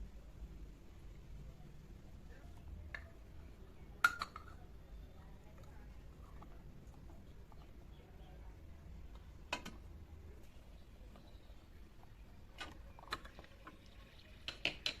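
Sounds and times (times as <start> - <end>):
low steady hum: 0.0 - 15.0
miniature utensils clicking: 14.4 - 15.0.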